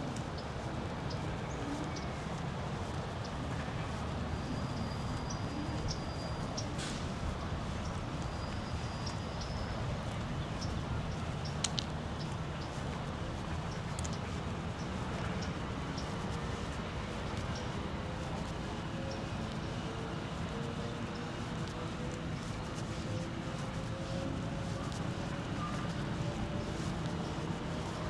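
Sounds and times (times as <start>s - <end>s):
distant background noise: 0.0s - 28.0s.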